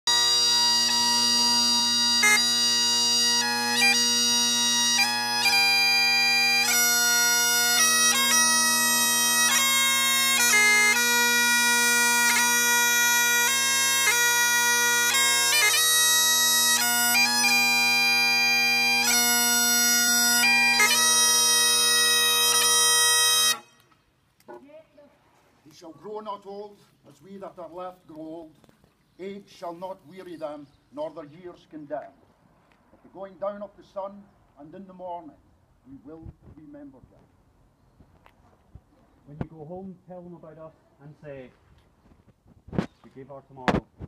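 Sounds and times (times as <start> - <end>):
bagpipe drones: 0.0 - 23.9
bagpipe playing a tune: 0.0 - 23.9.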